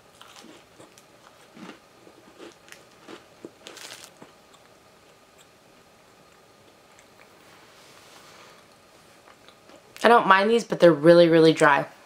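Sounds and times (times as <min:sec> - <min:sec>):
person chewing cookie: 0:00.0 - 0:07.4.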